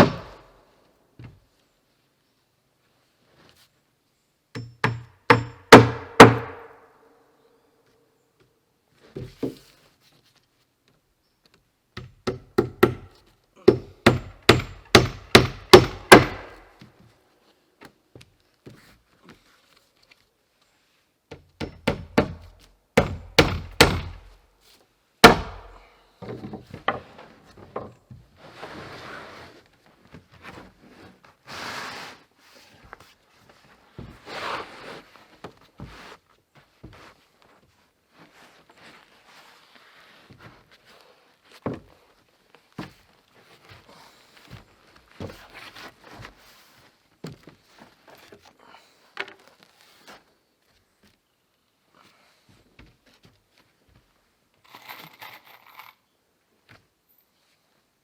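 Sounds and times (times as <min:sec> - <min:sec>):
hammer driving nails into wood: 0:00.0 - 0:00.4, 0:04.6 - 0:06.7, 0:12.0 - 0:16.7, 0:21.3 - 0:24.4, 0:25.2 - 0:25.8.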